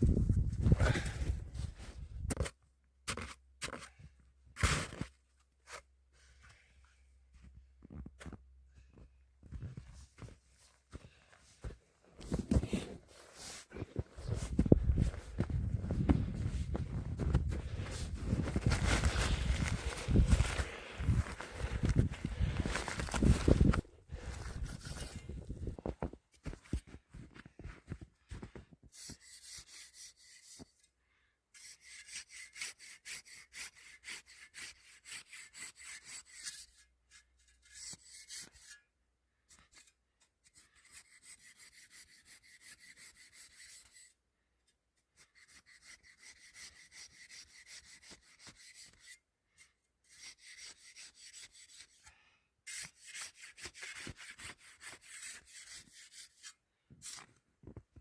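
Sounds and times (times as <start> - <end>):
saw rasping through icy snow: 12.4 - 25.8, 28.9 - 30.9, 31.6 - 38.9, 40.5 - 44.2, 45.2 - 57.4.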